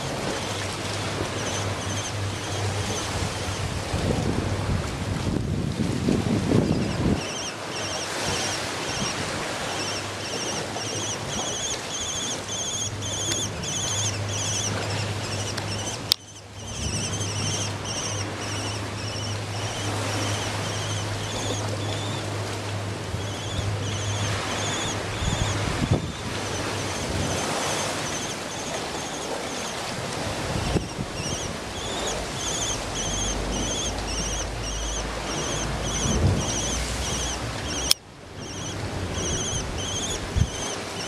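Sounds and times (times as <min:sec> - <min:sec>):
rushing wind or surf: 0:00.0 - 0:41.0
bird chirping: 0:01.4 - 0:03.6, 0:06.6 - 0:22.2, 0:23.2 - 0:29.7, 0:30.6 - 0:41.0
low hum: 0:09.8 - 0:29.1.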